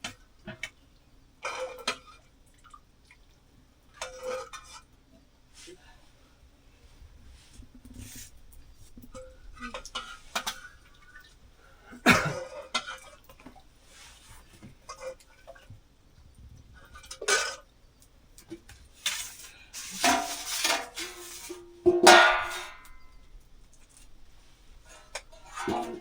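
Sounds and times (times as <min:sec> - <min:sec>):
pots and dishes clattering: 0:19.0 - 0:23.2, 0:25.0 - 0:26.0.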